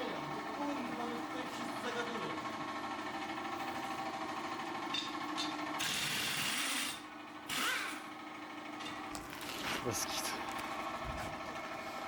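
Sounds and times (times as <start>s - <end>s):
car engine idling: 8.2s - 12.0s.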